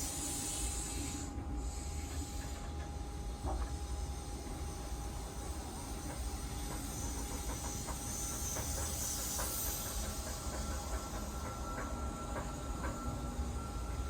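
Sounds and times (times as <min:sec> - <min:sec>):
electric train equipment humming: 0:00.0 - 0:14.0.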